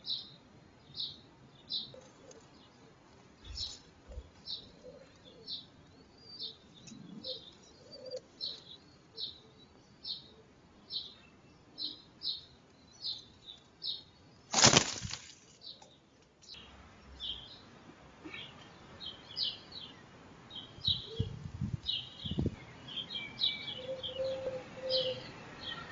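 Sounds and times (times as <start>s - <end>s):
pigeon wings flapping: 14.5s - 15.3s.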